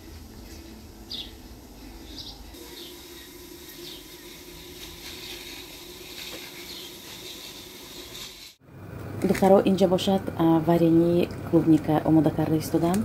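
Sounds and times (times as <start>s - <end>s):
small birds chirping: 0.4s - 4.2s.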